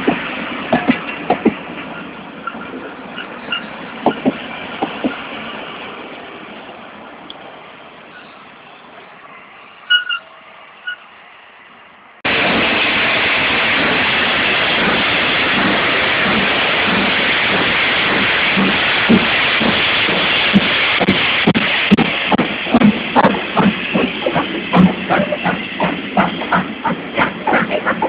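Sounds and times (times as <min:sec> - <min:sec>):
low rhythmic locomotive beats: 0:00.0 - 0:08.8, 0:12.2 - 0:28.0
loud hiss of steam: 0:12.3 - 0:28.0.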